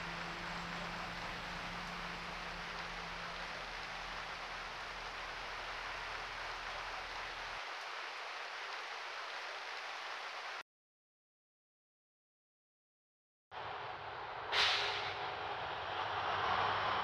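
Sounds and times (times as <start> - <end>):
rain hissing: 0.0 - 10.6, 14.5 - 17.0.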